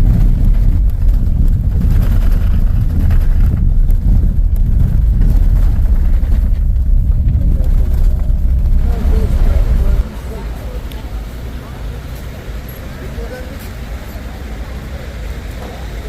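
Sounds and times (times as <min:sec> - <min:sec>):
loud low rumble: 0:00.0 - 0:12.0.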